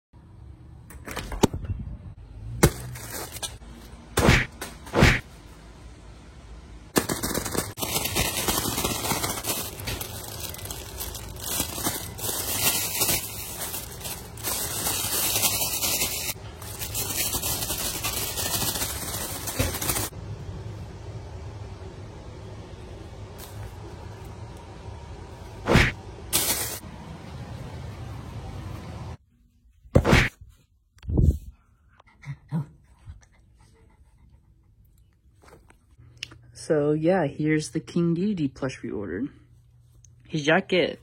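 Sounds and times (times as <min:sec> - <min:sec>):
material crackling and rustling: 0:06.9 - 0:20.1.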